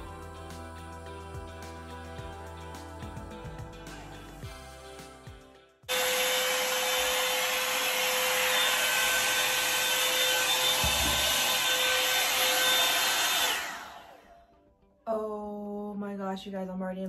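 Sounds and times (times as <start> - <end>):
hair dryer running: 5.9 - 14.4.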